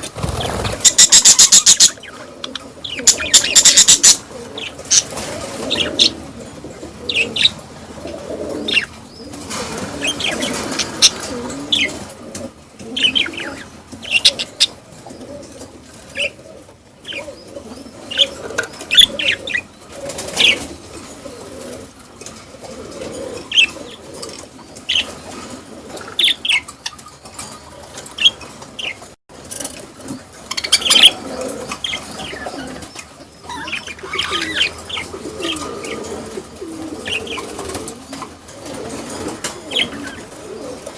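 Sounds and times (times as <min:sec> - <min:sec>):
wings flapping: 0:00.0 - 0:01.8
small birds chirping: 0:00.0 - 0:06.2, 0:30.3 - 0:36.2
low bird chatter: 0:00.0 - 0:12.1, 0:12.8 - 0:40.9.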